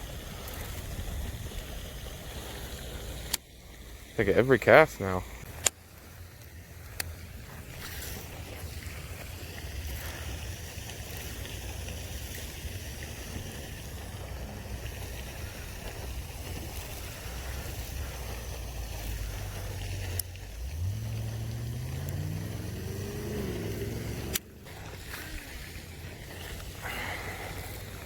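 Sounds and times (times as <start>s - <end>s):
vehicle engine accelerating: 6.8s - 28.0s.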